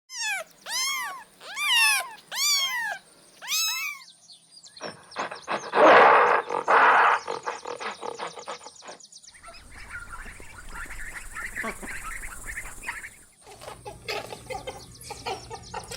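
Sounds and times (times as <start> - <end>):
cat meowing: 0.1 - 4.1.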